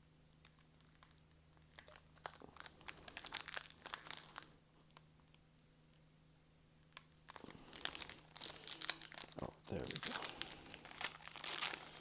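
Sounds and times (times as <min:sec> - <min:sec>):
foil wrapper crinkling and tearing: 0:00.4 - 0:05.1, 0:06.8 - 0:12.0.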